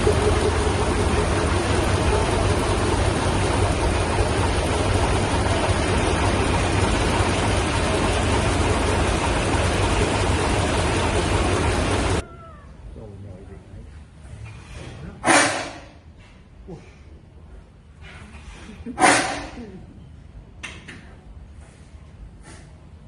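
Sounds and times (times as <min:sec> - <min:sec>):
large engine running: 0:00.0 - 0:12.2.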